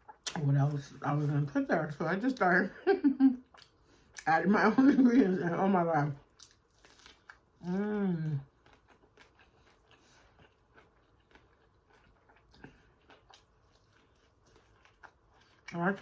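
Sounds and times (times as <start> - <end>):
close-up chewing: 6.1 - 7.7, 8.3 - 16.0.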